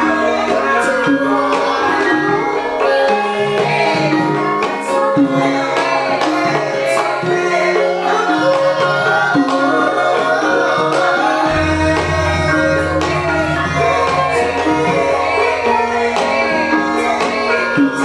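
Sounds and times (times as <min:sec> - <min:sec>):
person singing: 0:11.4 - 0:16.1
gongs: 0:11.4 - 0:17.7
hand drum strokes: 0:11.5 - 0:16.1
bronze metallophones ringing: 0:11.5 - 0:17.2.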